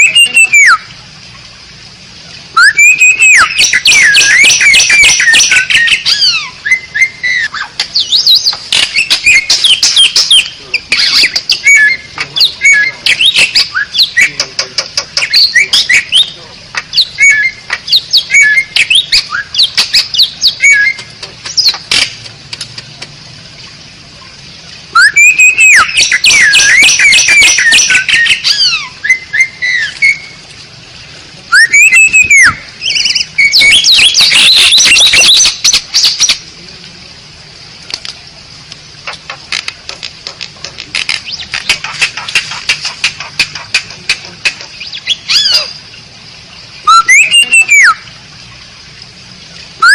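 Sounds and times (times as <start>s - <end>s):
starling singing: 0.0s - 0.8s, 2.6s - 21.8s, 24.9s - 30.4s, 31.5s - 36.4s, 41.0s - 45.8s, 46.8s - 48.0s.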